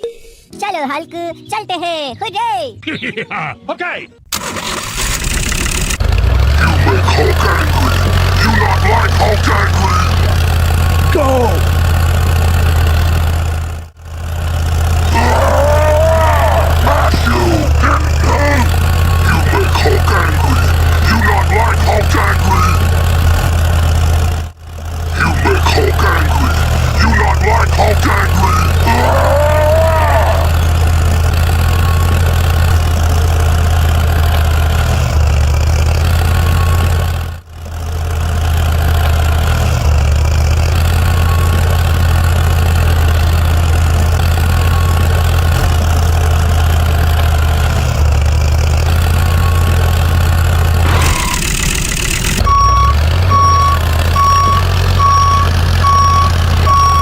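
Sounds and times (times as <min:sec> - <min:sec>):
truck engine humming: 0:00.5 - 0:57.0
reversing alarm beeping: 0:50.8 - 0:57.0.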